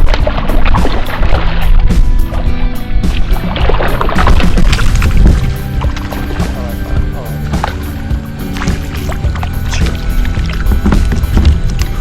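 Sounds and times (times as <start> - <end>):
background music: 0.0 - 12.0
low rumble: 0.0 - 12.0
water splashes: 0.0 - 12.0
kayak knocks: 8.5 - 12.0.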